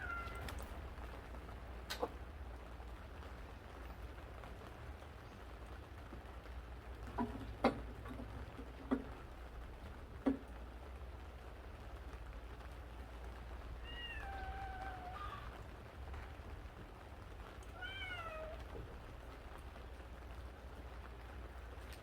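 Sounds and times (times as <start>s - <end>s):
cat meowing: 0.0s - 0.6s, 13.8s - 15.7s, 17.6s - 18.8s.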